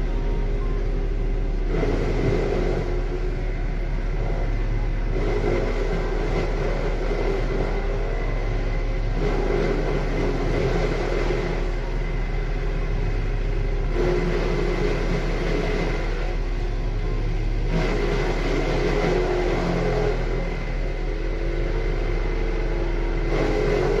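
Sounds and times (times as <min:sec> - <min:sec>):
loud mechanical clatter: 0:00.0 - 0:24.0
wood chipper engine droning: 0:00.0 - 0:24.0.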